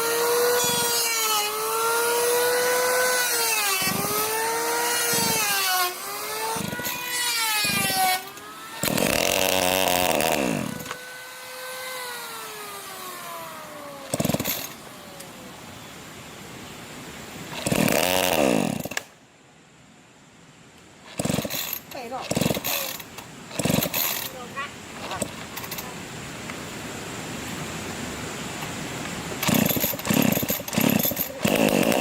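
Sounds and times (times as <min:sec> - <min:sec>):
power saw cutting wood: 0:00.0 - 0:14.9, 0:17.5 - 0:19.1, 0:21.1 - 0:25.9, 0:29.4 - 0:32.0.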